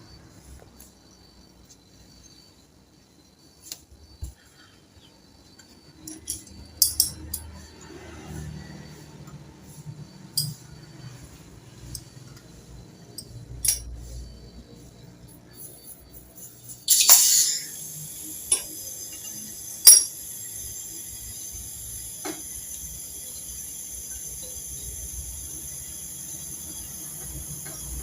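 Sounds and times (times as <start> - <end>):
metal tools clinking: 6.0 - 7.6, 10.3 - 10.7, 13.2 - 14.0, 18.5 - 20.3.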